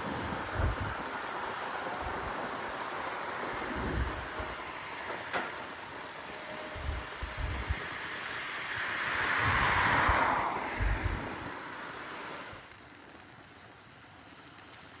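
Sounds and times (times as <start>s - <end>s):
wind rushing over microphone: 0.0s - 12.7s
motor vehicle passing: 6.5s - 12.6s.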